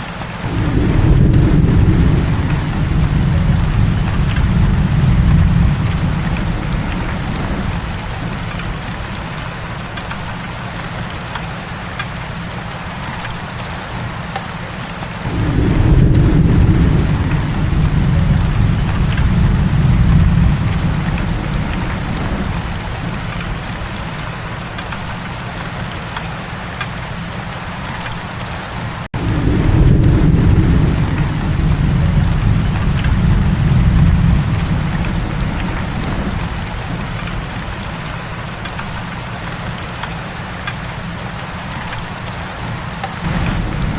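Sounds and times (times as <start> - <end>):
heavy rain hissing: 0.0 - 43.9
rolling thunder: 0.4 - 10.3, 15.2 - 25.4, 29.1 - 39.2, 43.2 - 43.9.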